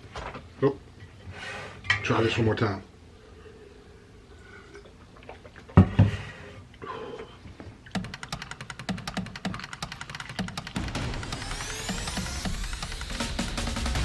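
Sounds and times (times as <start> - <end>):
fast even ticking: 8.0 - 14.0.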